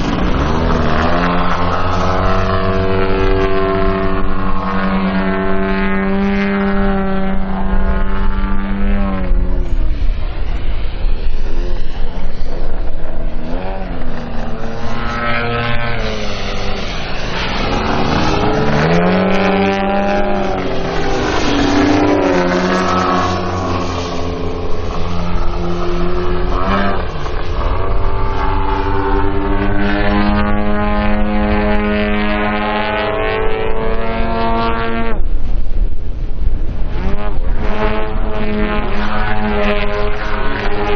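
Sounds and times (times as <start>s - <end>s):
model plane engines: 0.0s - 40.9s.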